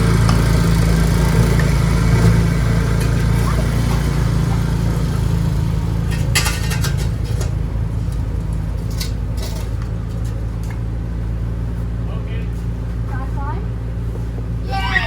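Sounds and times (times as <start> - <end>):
sharp clicks and rattles: 0.0 - 10.9
snowblower engine running: 0.0 - 15.0.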